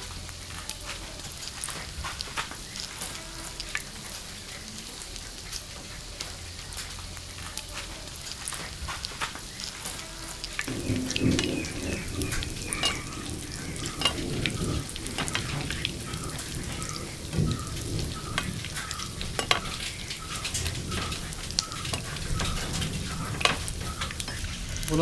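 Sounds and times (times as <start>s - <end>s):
deep-frying sizzle with crackles: 0.0s - 25.0s.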